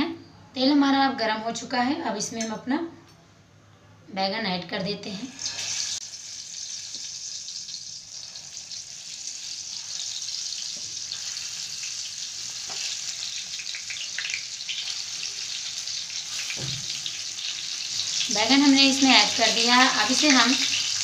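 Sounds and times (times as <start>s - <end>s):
food sizzling in hot oil: 5.2s - 21.0s.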